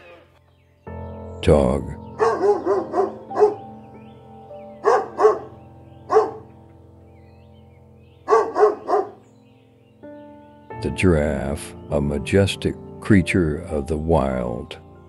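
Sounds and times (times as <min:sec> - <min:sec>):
dog barking: 0:02.2 - 0:03.8, 0:04.8 - 0:06.5, 0:08.3 - 0:09.2.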